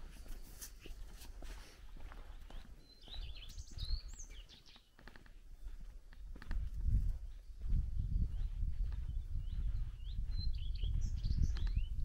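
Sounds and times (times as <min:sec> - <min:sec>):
footsteps on a dirt path: 0:00.0 - 0:12.0
songbird high chirps: 0:02.1 - 0:05.4, 0:07.2 - 0:12.0
low wind rumble: 0:05.5 - 0:12.0.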